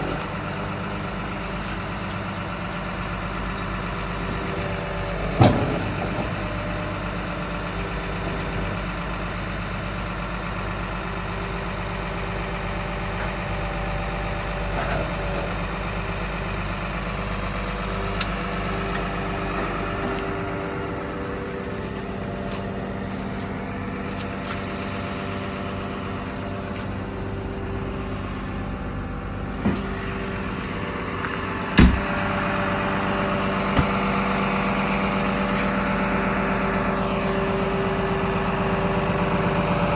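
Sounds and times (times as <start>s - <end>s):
bulldozer diesel engine idling: 0.0s - 39.9s
sharp knocks: 31.8s - 32.2s.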